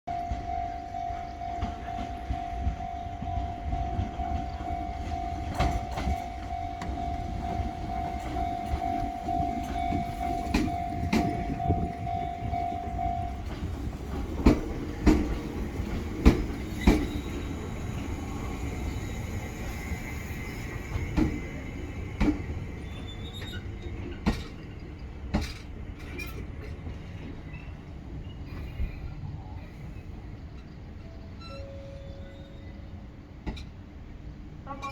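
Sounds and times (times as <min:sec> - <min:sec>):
electric train running rumble: 0:00.1 - 0:34.9
wheels clacking over rail joints: 0:01.5 - 0:17.6, 0:22.1 - 0:27.8.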